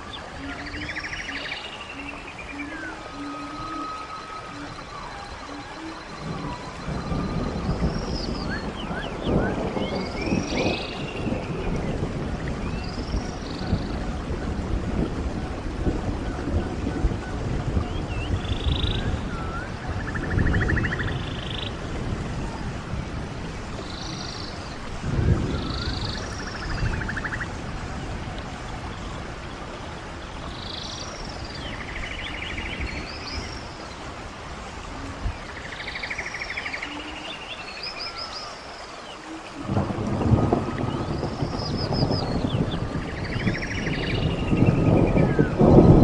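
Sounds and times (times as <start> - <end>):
songbird singing with buzzy trill: 0.0 - 12.0, 35.3 - 46.0
stream water running: 0.0 - 46.0.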